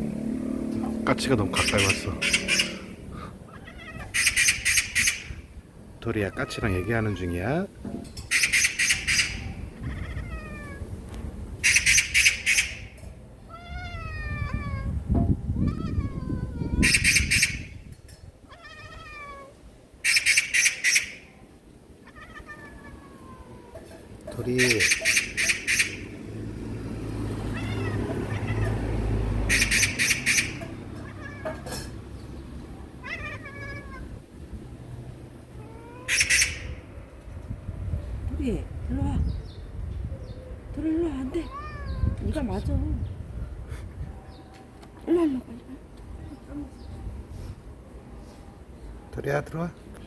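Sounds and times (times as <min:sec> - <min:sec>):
magpie rattling chatter: 0:01.2 - 0:03.1, 0:03.9 - 0:05.4, 0:08.2 - 0:10.1, 0:11.6 - 0:13.0, 0:16.7 - 0:17.8, 0:20.0 - 0:21.3, 0:24.3 - 0:26.2, 0:29.4 - 0:30.8, 0:36.1 - 0:36.8
cat chattering: 0:01.2 - 0:05.6, 0:06.2 - 0:07.5, 0:08.2 - 0:10.8, 0:11.6 - 0:15.0, 0:15.6 - 0:17.8, 0:18.5 - 0:26.4, 0:27.4 - 0:34.2, 0:35.5 - 0:36.9
cat mewing: 0:01.5 - 0:05.6, 0:06.2 - 0:07.7, 0:08.3 - 0:11.0, 0:11.6 - 0:17.8, 0:18.4 - 0:26.2, 0:27.2 - 0:34.4, 0:35.4 - 0:36.9, 0:41.2 - 0:42.4.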